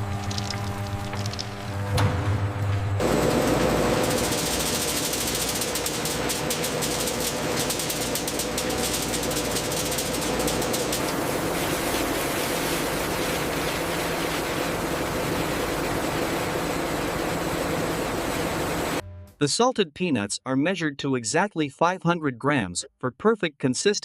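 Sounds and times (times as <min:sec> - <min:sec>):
factory machinery rattling: 0:00.2 - 0:19.0.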